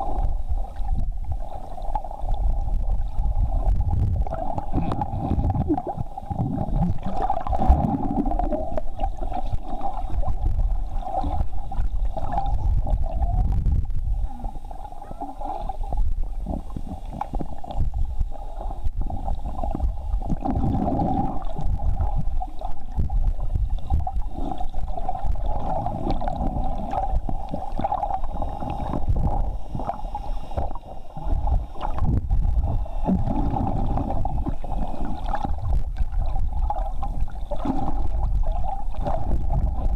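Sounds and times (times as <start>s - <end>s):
muffled boat motor underwater: 0.0s - 39.9s
water gurgling and surging: 0.0s - 39.9s.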